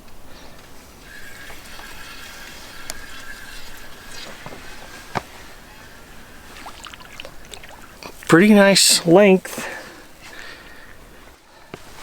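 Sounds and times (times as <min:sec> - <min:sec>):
faint high whine: 0:00.0 - 0:11.8
water splashing and trickling: 0:00.3 - 0:11.2.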